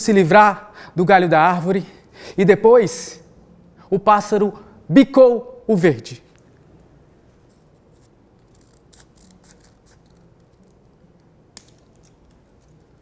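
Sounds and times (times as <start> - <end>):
scissors snipping paper: 7.9 - 10.9.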